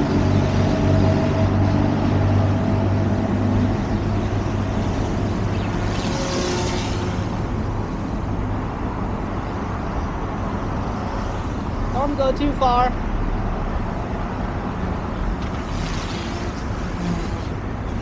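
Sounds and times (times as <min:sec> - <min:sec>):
rc helicopter motor and rotors: 0:04.2 - 0:08.0, 0:15.2 - 0:18.0.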